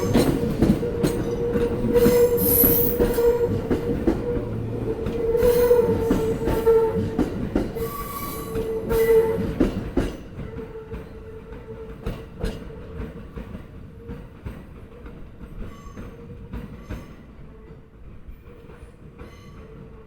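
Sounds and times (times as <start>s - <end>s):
train wheels clacking over rail joints: 0.0s - 17.3s
wheel squeal: 1.3s - 3.6s.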